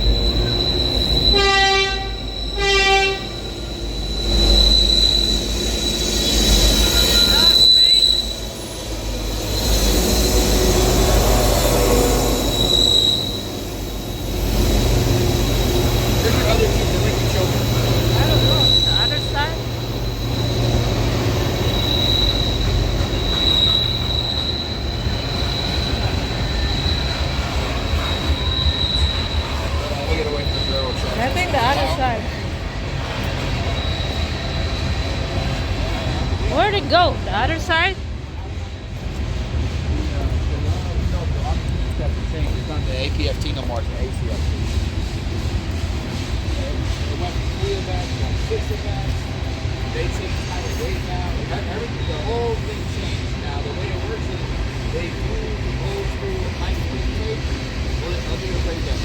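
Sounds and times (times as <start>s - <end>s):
high-pitched wheel squeal: 0.0s - 37.8s, 45.7s - 59.0s
train rumbling: 0.0s - 59.0s
train horn blasts: 1.2s - 3.5s.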